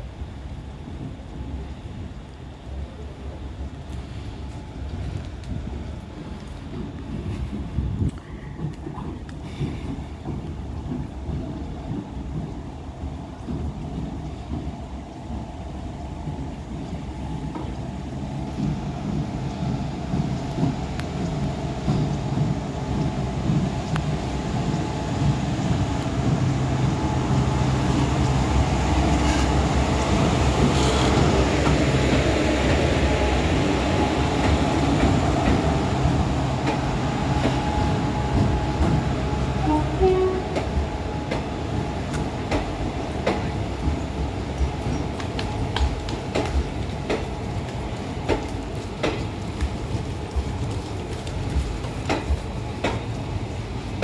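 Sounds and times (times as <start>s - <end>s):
locomotive passing with low hum: 0.0s - 54.0s
train wheels clicking over rail joints: 3.7s - 54.0s.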